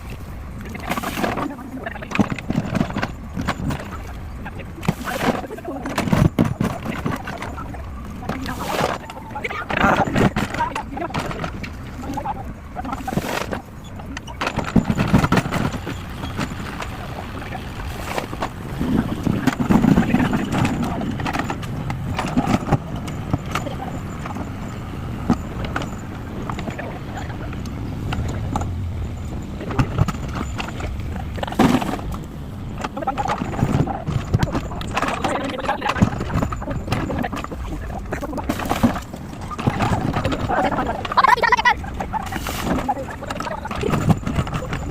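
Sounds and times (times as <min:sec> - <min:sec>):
backhoe engine under load: 0:00.0 - 0:44.9
material clattering: 0:00.6 - 0:24.6, 0:25.2 - 0:44.9.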